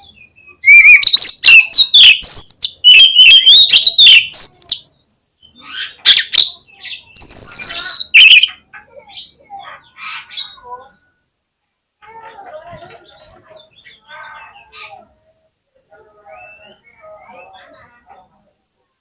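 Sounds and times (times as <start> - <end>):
songbird singing whistles and chirps: 0.0 - 11.2, 16.0 - 18.0.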